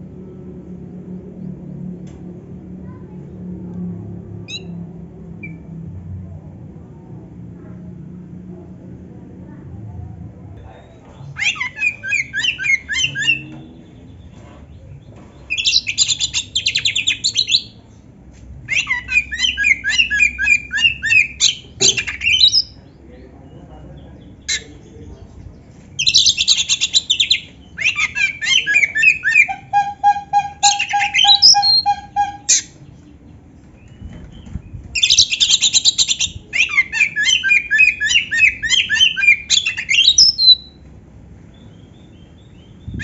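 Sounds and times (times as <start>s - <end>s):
songbird singing fast varied phrases: 11.3s - 13.5s, 15.5s - 17.8s, 18.7s - 33.0s, 35.0s - 40.8s.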